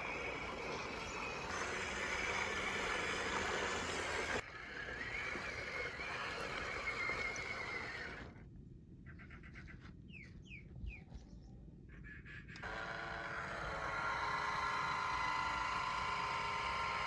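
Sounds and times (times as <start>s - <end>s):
electric motor whining: 0.0s - 8.4s, 12.6s - 17.0s.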